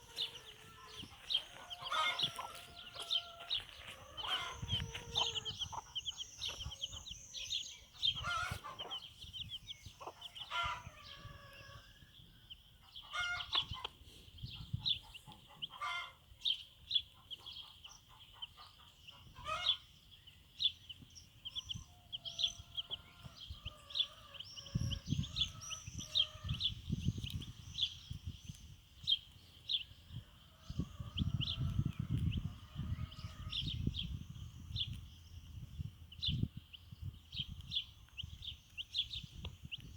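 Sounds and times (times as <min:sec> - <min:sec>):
hen clucking: 0:00.0 - 0:11.8, 0:12.8 - 0:16.3, 0:17.1 - 0:19.8
chicks peeping: 0:00.0 - 0:39.9.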